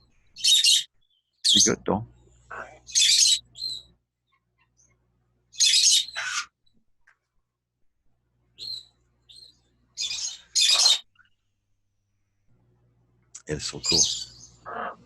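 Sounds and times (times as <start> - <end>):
parrot screeching: 0.4 - 0.8, 2.5 - 3.8, 5.6 - 6.5, 10.0 - 11.1
parrot short calls: 5.6 - 6.5, 10.0 - 11.0.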